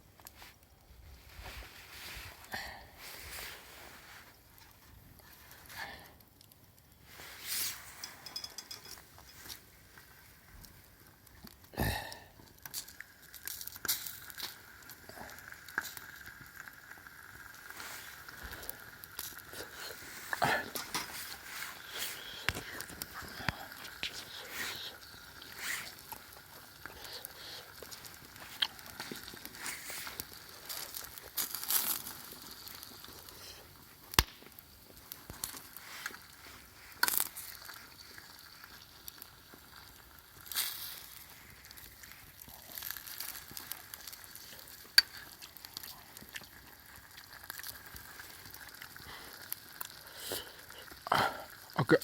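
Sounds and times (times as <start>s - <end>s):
fire popping: 0.0s - 52.0s
wood fire crackling and sizzling: 0.0s - 52.0s
hissing flares: 7.0s - 10.8s, 12.6s - 38.7s.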